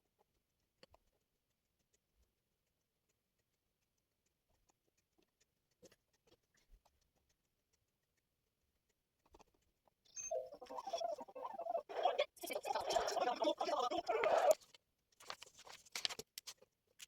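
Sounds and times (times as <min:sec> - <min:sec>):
light clicks and taps: 0:00.0 - 0:10.0, 0:14.5 - 0:17.0.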